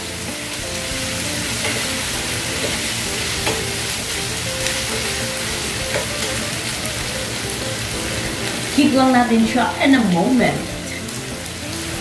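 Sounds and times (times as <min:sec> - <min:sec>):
food sizzling in a frying pan: 0:00.0 - 0:12.0
spoon scraping a pan: 0:01.3 - 0:04.0.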